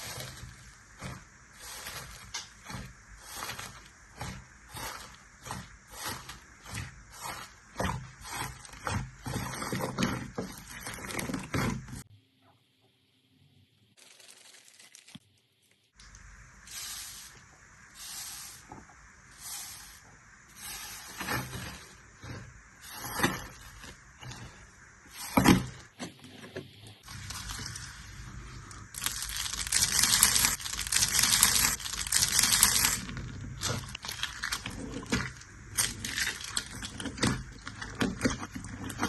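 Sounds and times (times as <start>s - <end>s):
slime squishing by hand: 27.0s - 39.0s.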